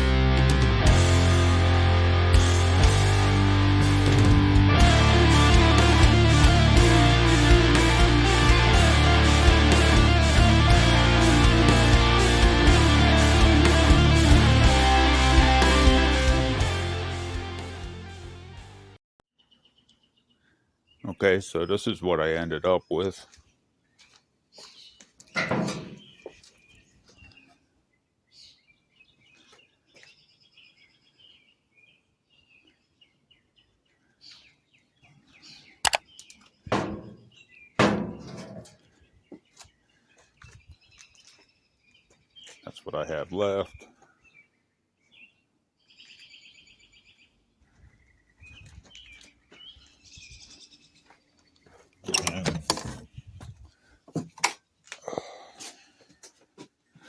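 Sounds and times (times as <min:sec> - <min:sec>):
bird chirping: 0:19.4 - 0:22.0, 0:22.8 - 0:43.0, 0:43.6 - 0:53.5
knocks and clatter of handling: 0:25.3 - 0:26.3, 0:36.7 - 0:38.8, 0:52.0 - 0:53.1
sharp clicks: 0:35.9 - 0:37.1.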